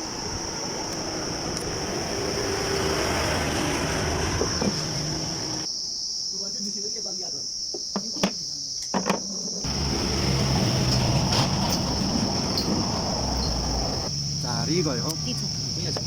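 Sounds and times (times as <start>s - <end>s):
insects chirring: 0.0s - 16.0s
background noise: 3.7s - 16.0s.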